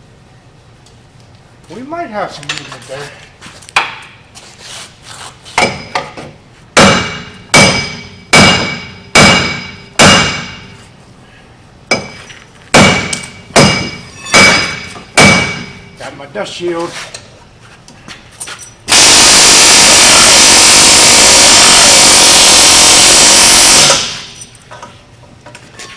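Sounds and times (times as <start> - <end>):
hammer striking metal hub: 6.8 - 10.7, 11.9 - 15.8.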